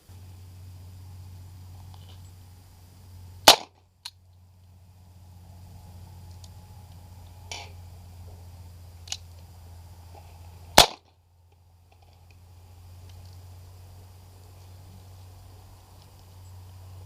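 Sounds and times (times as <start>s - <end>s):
pistol shot: 3.4s - 3.8s, 10.8s - 11.1s.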